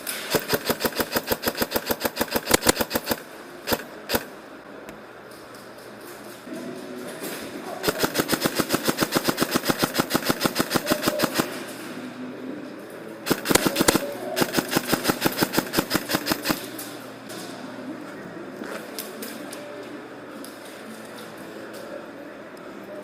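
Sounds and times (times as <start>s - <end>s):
airsoft rifle full auto fire: 0.0s - 4.3s, 7.8s - 11.6s, 13.3s - 16.7s
loud irregular cracks: 0.0s - 4.3s, 7.8s - 11.8s, 13.3s - 16.9s.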